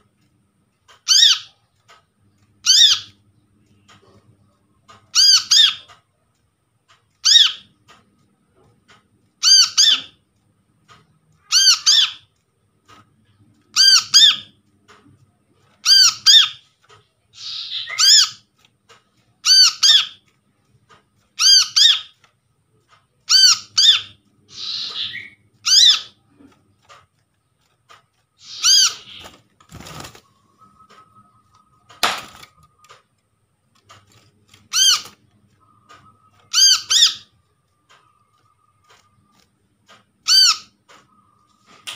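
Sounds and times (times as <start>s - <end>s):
harsh rasping bird calls: 2.6s - 3.2s, 7.2s - 7.7s, 9.4s - 10.2s, 11.4s - 12.3s, 13.7s - 14.6s, 15.8s - 16.7s, 17.3s - 18.5s, 19.4s - 20.2s, 21.4s - 22.2s, 23.3s - 26.4s, 28.4s - 33.0s, 34.6s - 39.0s, 40.2s - 41.5s.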